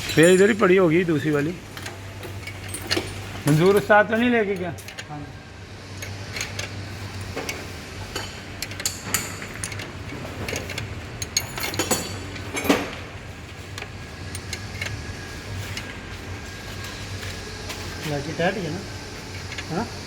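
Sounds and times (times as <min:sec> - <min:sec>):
metal tools clinking: 0:00.0 - 0:05.3, 0:06.0 - 0:16.0
steady low hum: 0:00.0 - 0:20.0.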